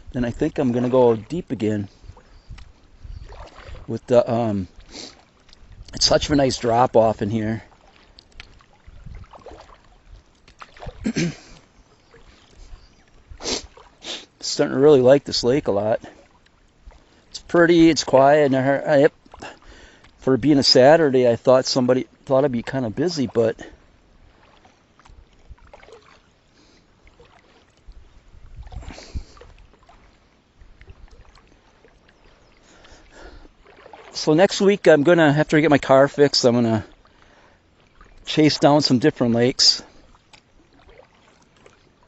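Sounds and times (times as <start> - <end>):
water sloshing around kayak: 0.0 - 42.0
short loud splashes: 3.2 - 3.9, 8.6 - 9.9, 10.6 - 11.6.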